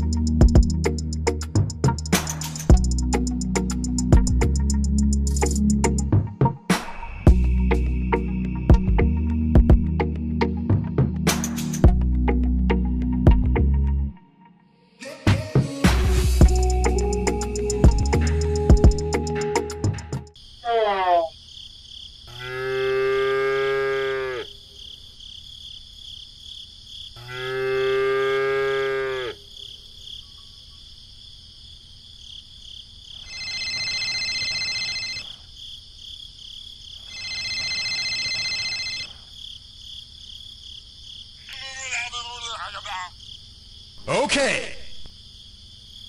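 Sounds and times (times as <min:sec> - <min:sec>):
deep moo-like animal calls: 0:22.3 - 0:24.6, 0:27.2 - 0:29.6
telephone ringing: 0:33.3 - 0:35.4, 0:37.1 - 0:39.2.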